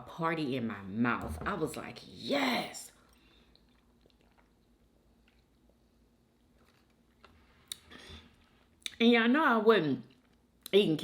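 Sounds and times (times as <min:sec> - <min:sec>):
faint chewing of food: 0:03.0 - 0:09.0, 0:10.0 - 0:10.8.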